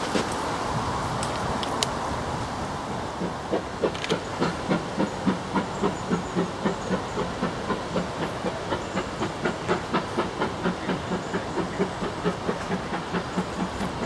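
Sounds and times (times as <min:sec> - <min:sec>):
steam hissing: 0:00.0 - 0:14.0
steam locomotive beats: 0:02.9 - 0:14.0.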